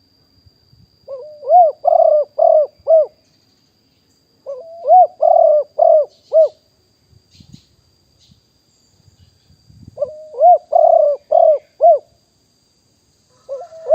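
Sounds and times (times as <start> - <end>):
dove cooing: 1.1 - 3.2, 4.4 - 6.6, 10.0 - 12.2, 13.3 - 13.9.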